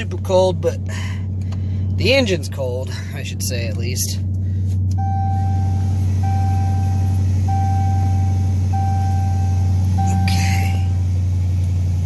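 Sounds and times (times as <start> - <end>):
car engine idling: 0.0 - 12.0
car warning chime: 5.0 - 11.1.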